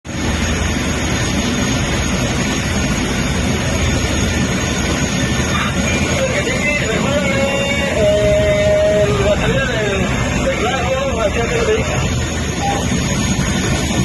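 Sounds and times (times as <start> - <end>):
helicopter turbine engine noise: 0.0 - 14.0.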